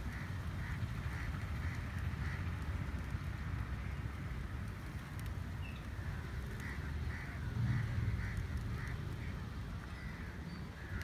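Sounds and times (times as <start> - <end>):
birds harsh calls: 0.0 - 2.7, 5.6 - 11.0
wind and surf rumble: 0.0 - 11.0.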